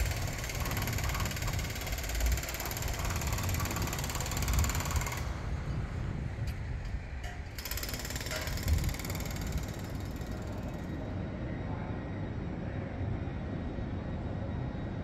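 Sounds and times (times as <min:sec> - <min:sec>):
train low rumble: 0:00.0 - 0:07.6, 0:08.2 - 0:15.0
sharp metallic clicks: 0:07.2 - 0:10.4.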